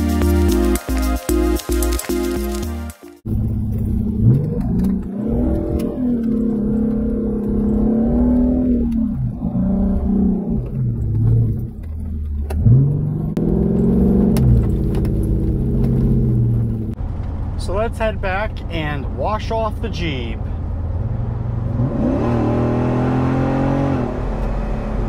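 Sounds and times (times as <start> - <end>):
car engine accelerating: 3.2 - 17.7, 20.4 - 25.0.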